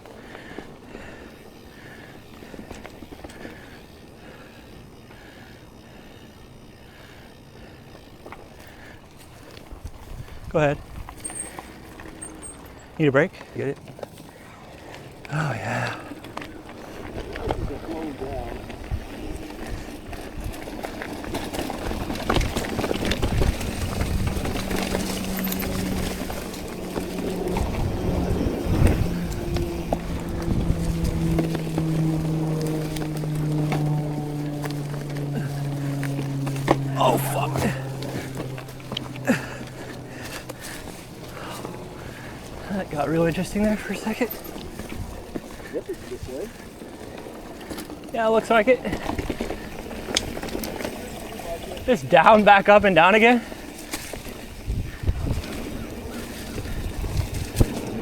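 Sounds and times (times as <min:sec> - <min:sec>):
steady low hum: 0:00.0 - 0:47.6
low rumble of bike ride: 0:00.0 - 0:58.0
person breathing hard: 0:00.1 - 0:10.5, 0:36.8 - 0:42.7
wind on microphone: 0:54.5 - 0:58.0.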